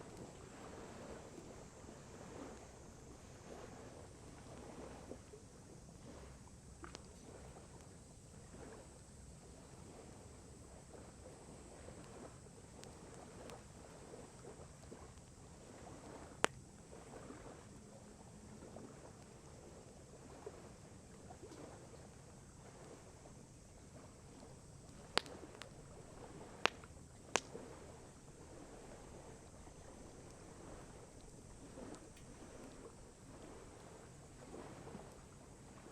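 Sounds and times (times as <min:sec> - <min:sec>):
lake water lapping: 0:00.0 - 0:35.9
campfire crackling: 0:11.2 - 0:16.9, 0:23.0 - 0:33.7
sharp fire pops: 0:24.8 - 0:25.8, 0:26.5 - 0:27.6.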